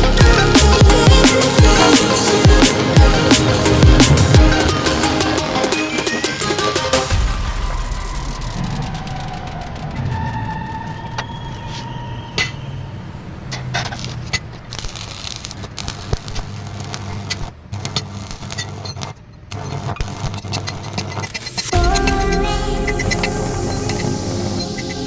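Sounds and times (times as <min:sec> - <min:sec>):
steady low rumble: 0:00.0 - 0:05.8, 0:07.1 - 0:11.4, 0:21.7 - 0:25.0
metallic clinks and scrapes: 0:11.2 - 0:12.6, 0:13.5 - 0:21.8.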